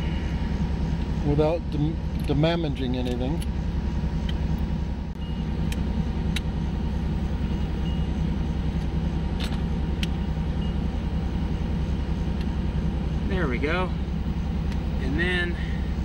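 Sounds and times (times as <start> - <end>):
car engine idling: 0.0 - 16.0
glove box latch clicks: 8.8 - 10.2.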